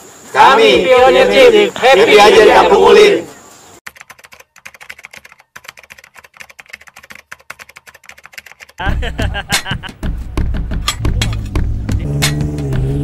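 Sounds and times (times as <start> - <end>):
keyboard typing clicks: 3.9 - 8.8.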